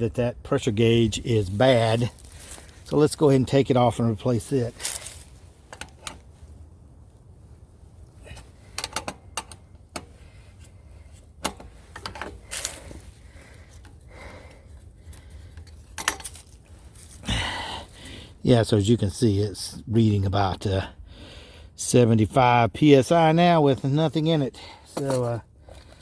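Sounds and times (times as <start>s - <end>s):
steady low rumble: 0.0s - 18.4s
metal tools clinking: 15.5s - 17.2s.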